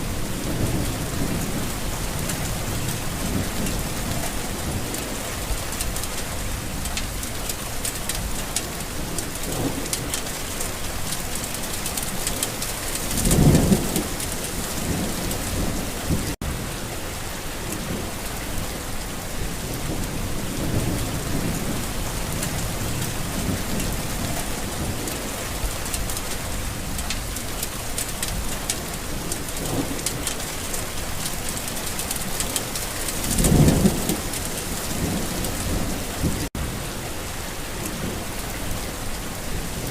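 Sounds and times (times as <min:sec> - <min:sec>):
heavy rain falling: 0:00.0 - 0:39.9
thunder rumbling: 0:12.0 - 0:16.7, 0:19.4 - 0:36.8.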